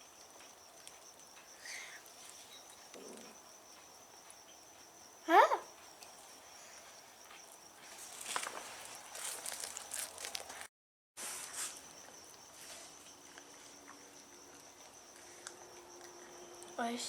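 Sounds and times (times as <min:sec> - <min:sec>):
high insect chirr: 0:00.0 - 0:10.7, 0:11.4 - 0:17.0
soft crackles and rustles: 0:00.4 - 0:04.9, 0:05.8 - 0:13.8.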